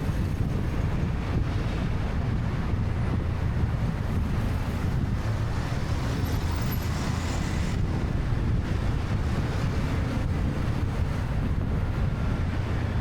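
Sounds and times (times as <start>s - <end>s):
road traffic noise: 0.0s - 13.0s
wind on microphone: 0.0s - 13.0s.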